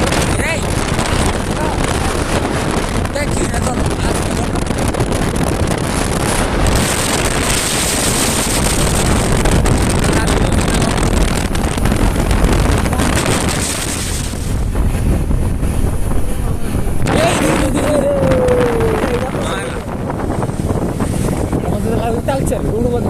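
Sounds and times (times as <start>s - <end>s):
low rumble: 0.0s - 23.0s
wind buffeting microphone: 0.0s - 23.0s.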